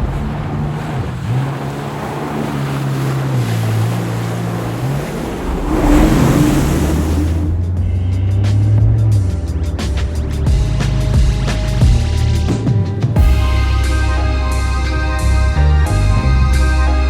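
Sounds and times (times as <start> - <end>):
water spray splashing: 0.0 - 7.6
watercraft engine running: 0.0 - 17.0
wind: 0.0 - 17.0.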